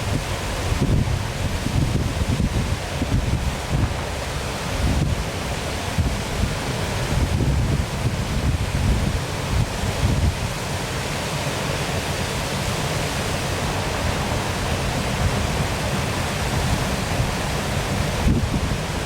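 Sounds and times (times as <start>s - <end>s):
wind buffeting microphone: 0.0s - 10.6s, 13.8s - 19.0s
waterfall rushing: 0.0s - 19.0s.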